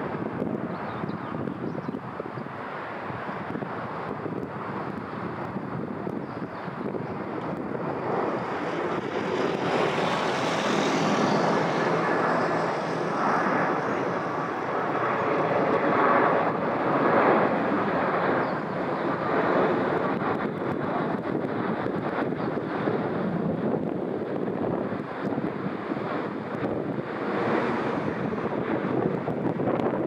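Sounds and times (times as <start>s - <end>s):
jet engines roaring: 0.0s - 30.0s.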